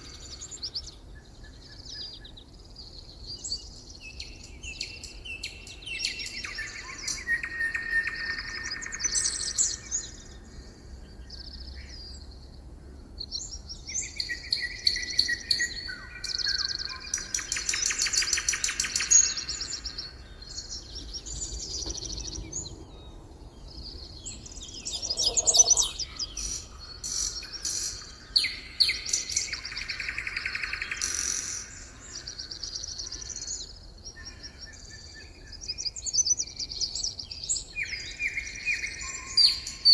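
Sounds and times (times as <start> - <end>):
songbirds chirping and trilling: 0.0 - 39.9
lower short bird call: 24.7 - 26.5.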